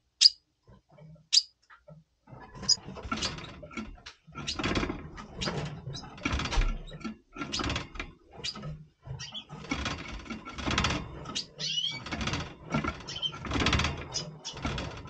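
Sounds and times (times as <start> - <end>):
birds twittering: 0.0 - 0.4, 11.3 - 12.0, 13.0 - 13.5
high bird chirp: 0.2 - 0.4, 1.3 - 1.6.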